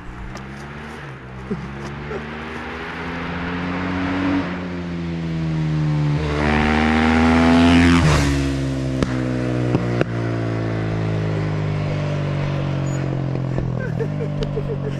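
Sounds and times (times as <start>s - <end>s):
motorcycle engine idling and revving: 0.0s - 14.9s.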